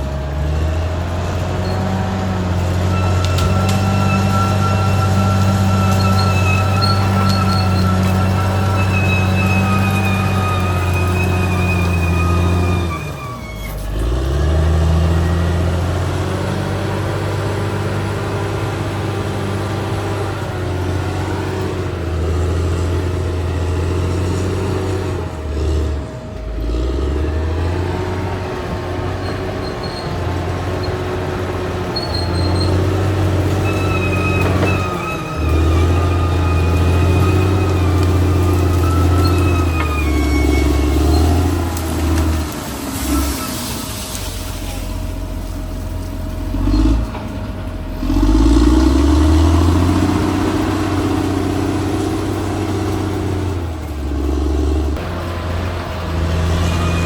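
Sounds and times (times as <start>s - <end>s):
bulldozer diesel engine running hard: 0.0s - 57.0s.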